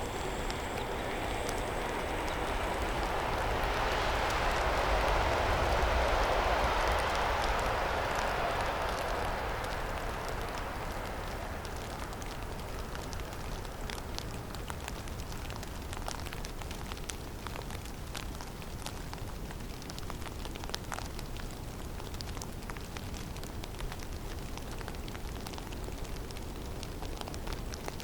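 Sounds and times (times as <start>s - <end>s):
snow and ice pattering: 0.0s - 16.6s
low wind rumble: 0.0s - 28.0s.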